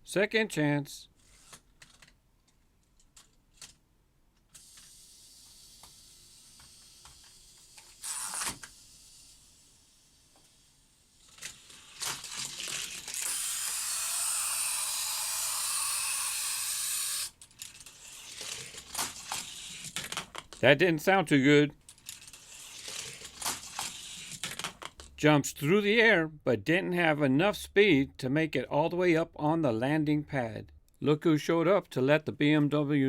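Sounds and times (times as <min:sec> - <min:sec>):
toy car rushing whir: 0:01.2 - 0:01.6, 0:04.5 - 0:20.6, 0:21.9 - 0:25.1
toy car clicks and clacks: 0:04.5 - 0:09.7, 0:11.1 - 0:20.6, 0:21.9 - 0:25.2.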